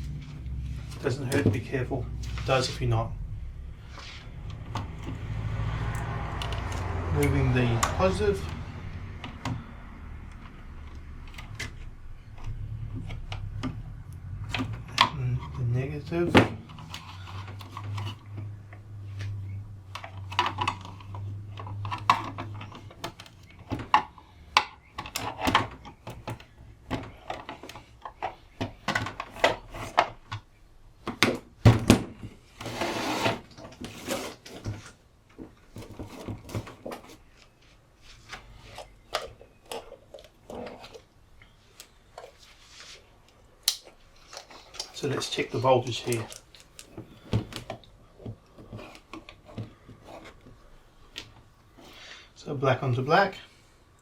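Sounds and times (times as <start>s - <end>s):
low hum: 2.0s - 15.1s
clicks and knocks of handling: 5.9s - 15.7s, 16.3s - 32.4s, 33.5s - 51.5s
scraping rustle: 32.5s - 35.0s, 41.8s - 43.2s.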